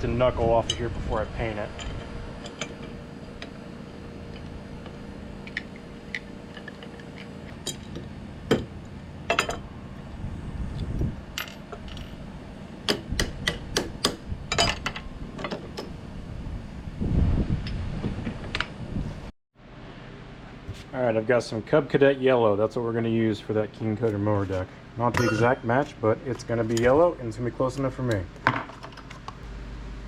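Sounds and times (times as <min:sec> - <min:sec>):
metal tools clinking: 0:01.6 - 0:03.0, 0:09.3 - 0:09.6, 0:25.2 - 0:25.8.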